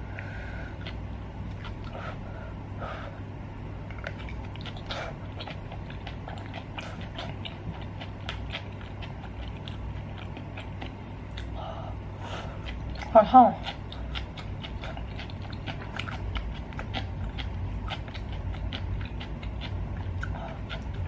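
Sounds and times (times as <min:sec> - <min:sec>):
wet chewing and mouth clicks: 0:00.7 - 0:02.1, 0:03.8 - 0:21.0.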